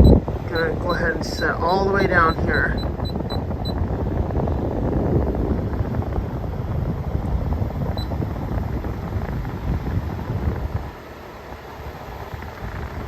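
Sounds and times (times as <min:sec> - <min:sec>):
short high beeps: 0:00.0 - 0:03.8
air conditioner fan blowing: 0:00.0 - 0:13.0.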